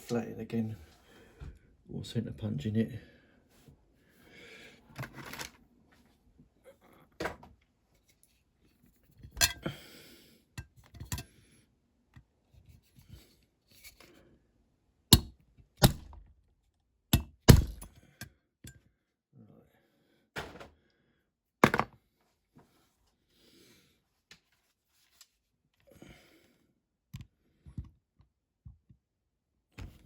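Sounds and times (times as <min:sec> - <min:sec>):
hammer striking a punch: 0:15.2 - 0:16.1, 0:17.2 - 0:17.9.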